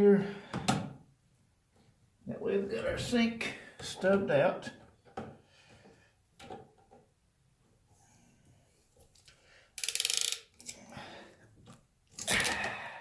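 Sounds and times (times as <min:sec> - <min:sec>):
crimp tool ratcheting clicks: 0:09.8 - 0:10.8.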